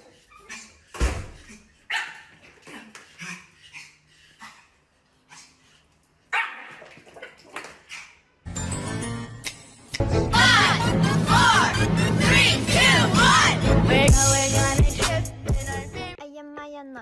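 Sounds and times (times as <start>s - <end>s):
dog barking: 1.9s - 2.3s, 6.3s - 6.9s.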